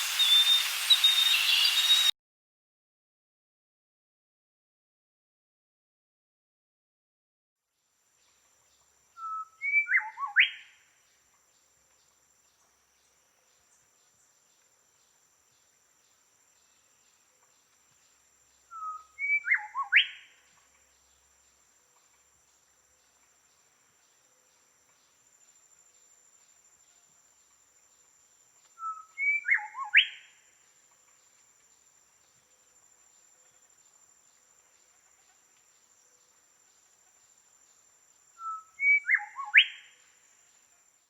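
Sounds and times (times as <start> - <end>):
songbird whistling: 0.0 - 2.1, 9.2 - 10.7, 18.7 - 20.3, 28.8 - 30.3, 38.4 - 39.9
thin high-pitched tone: 0.0 - 2.1.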